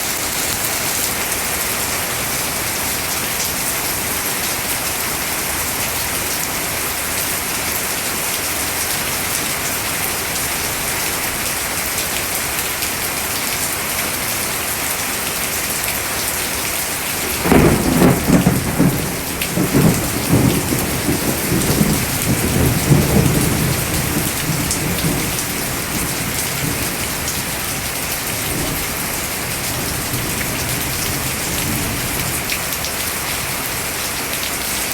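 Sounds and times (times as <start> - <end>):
rain falling: 0.0 - 34.9
thunder rumbling: 17.2 - 32.4.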